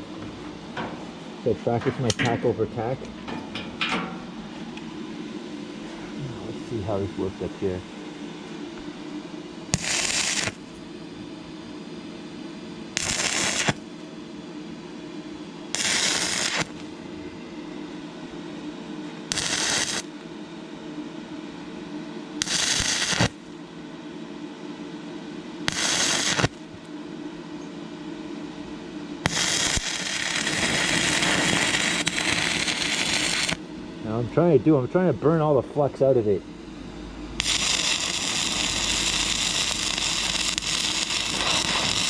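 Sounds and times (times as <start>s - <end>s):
welding arc crackling sizzle: 0.0s - 8.9s, 9.6s - 10.9s, 12.9s - 14.1s, 15.7s - 17.1s, 19.3s - 20.3s, 22.4s - 23.6s, 25.6s - 26.9s, 29.2s - 35.6s, 37.3s - 42.0s
steady hum: 0.0s - 42.0s.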